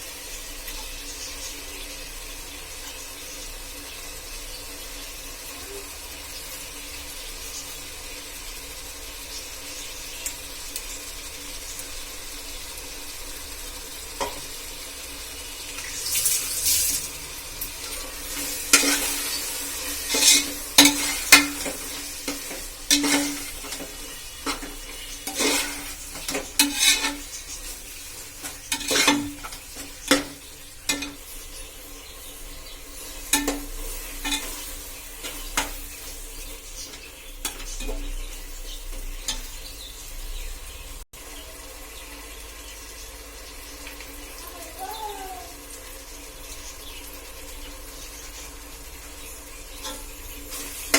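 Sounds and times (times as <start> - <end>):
food sizzling in hot oil: 0.0 - 50.9
spoon scraping and clanking pan: 14.1 - 14.5, 17.8 - 39.8, 49.7 - 50.9.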